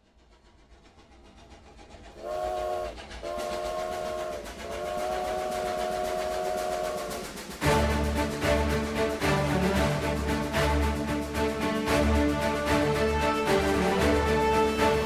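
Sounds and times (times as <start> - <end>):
train rumble: 0.0 - 15.0
train whistle blasts: 2.2 - 7.8.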